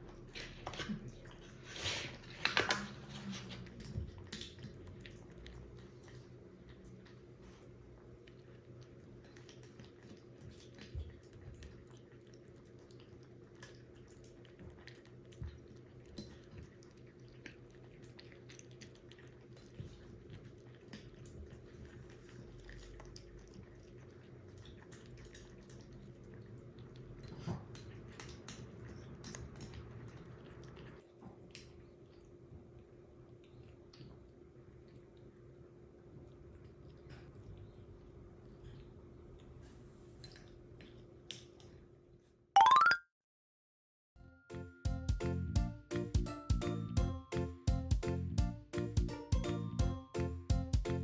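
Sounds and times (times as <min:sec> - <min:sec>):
kitten chewing food: 0:00.0 - 0:42.2.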